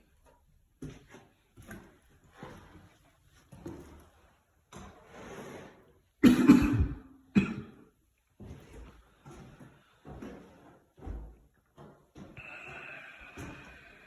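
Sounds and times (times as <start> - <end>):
person coughing: 6.2 - 7.8.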